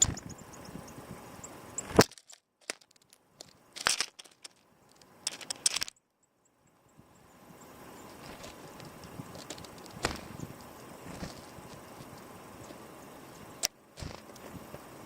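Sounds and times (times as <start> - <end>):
small birds chirping: 0.0 - 2.0, 2.8 - 15.0
sharp knocks and crunches: 8.2 - 10.5, 11.1 - 12.2, 14.0 - 14.3.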